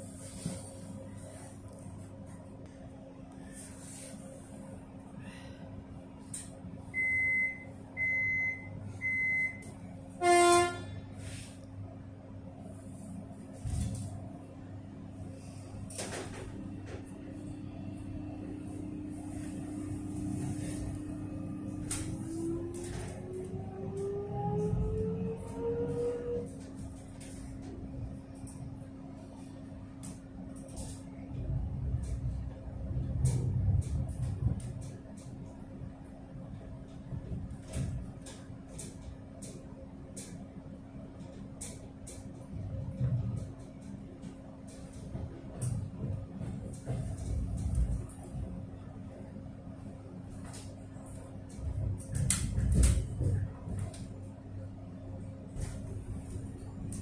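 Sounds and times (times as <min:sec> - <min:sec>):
electric train rumbling and humming: 0:00.0 - 0:57.0
electric train motors whining: 0:16.4 - 0:26.6.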